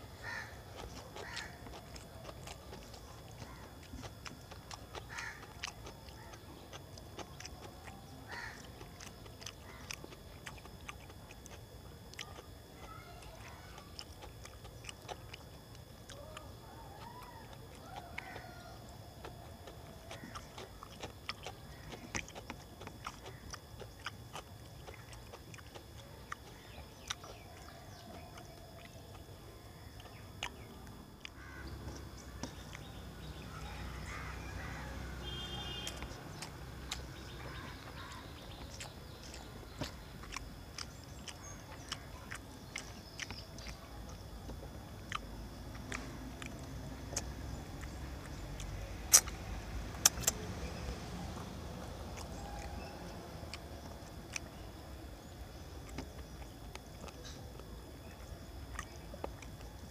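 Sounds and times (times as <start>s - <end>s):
chewing food: 0.0s - 59.9s
sharp clicks: 45.1s - 50.5s.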